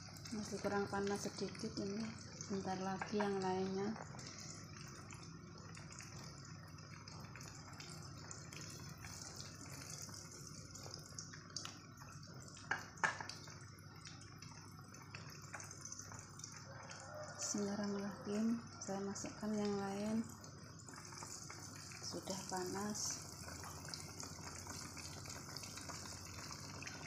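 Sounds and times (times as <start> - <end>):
eggplant sizzling in oil: 0.0 - 14.0, 14.6 - 27.0.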